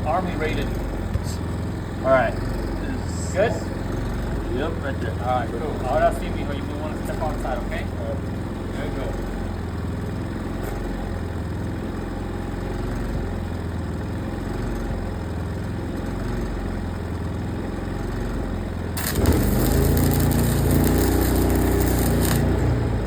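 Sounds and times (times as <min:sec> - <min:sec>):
engine idling: 0:00.0 - 0:23.0
welding arc crackling: 0:18.9 - 0:23.0.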